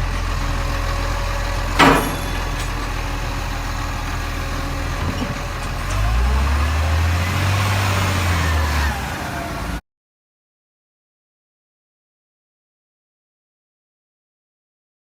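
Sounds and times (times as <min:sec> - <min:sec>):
diesel engine idling: 0:00.0 - 0:09.8.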